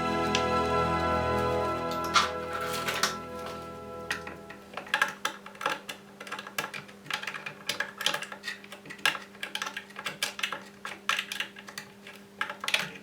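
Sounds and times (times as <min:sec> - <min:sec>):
light clicks and clatters: 0:04.9 - 0:13.0.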